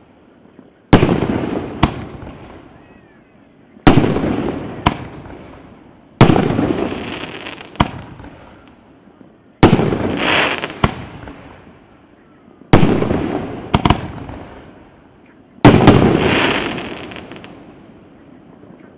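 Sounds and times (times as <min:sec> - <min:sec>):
firework sharp crack: 0:00.9 - 0:02.7, 0:03.9 - 0:08.8, 0:09.6 - 0:11.8, 0:12.8 - 0:14.7, 0:15.6 - 0:17.7
firework bangs: 0:00.9 - 0:02.8, 0:03.8 - 0:08.7, 0:09.6 - 0:11.8, 0:12.7 - 0:14.8, 0:15.6 - 0:17.7.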